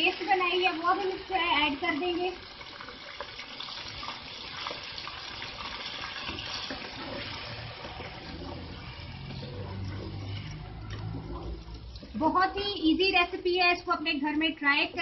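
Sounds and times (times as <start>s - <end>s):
chicken sizzling in hot oil: 0.0s - 12.8s
spatula stirring paste: 4.5s - 13.2s.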